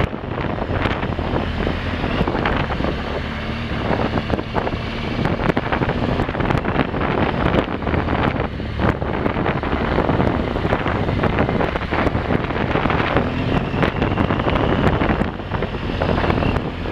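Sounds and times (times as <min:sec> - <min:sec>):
motorcycle engine running: 0:00.0 - 0:16.9
wind buffeting on microphone: 0:00.0 - 0:16.9.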